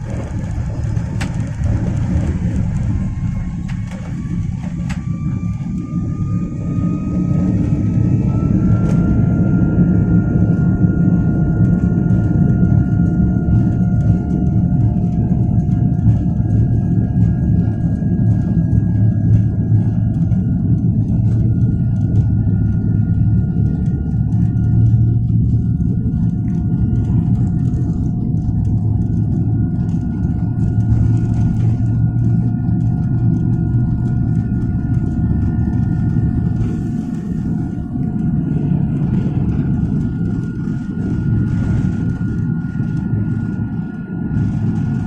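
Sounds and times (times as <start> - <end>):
jet engines rumbling and whining: 0.0 - 45.0.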